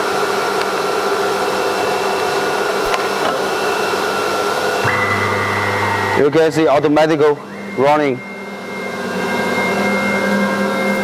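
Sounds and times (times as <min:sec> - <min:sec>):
cnc router motor whining: 0:00.0 - 0:11.0
higher tone: 0:03.5 - 0:11.0.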